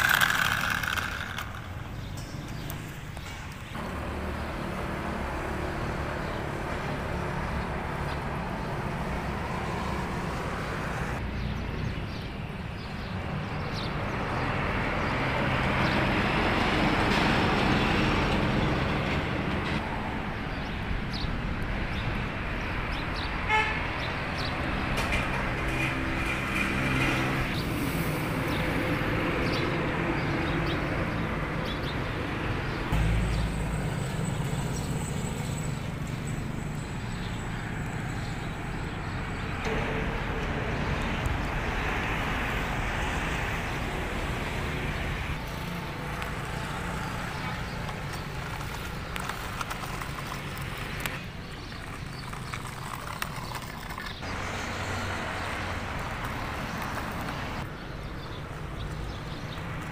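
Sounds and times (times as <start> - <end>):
vehicle engines running: 0.0 - 12.4, 24.4 - 59.9.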